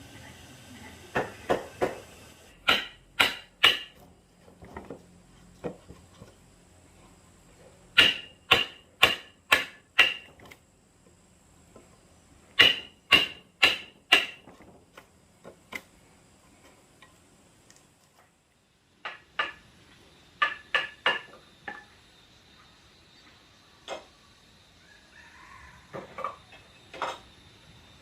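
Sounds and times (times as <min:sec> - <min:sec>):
hammer striking wood: 0:02.6 - 0:04.0, 0:08.0 - 0:10.3, 0:12.6 - 0:14.5, 0:19.0 - 0:19.6, 0:20.4 - 0:21.8.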